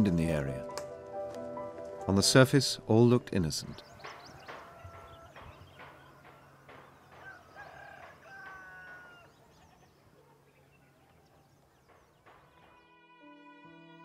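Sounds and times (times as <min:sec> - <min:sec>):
birds calling: 0:02.9 - 0:12.9.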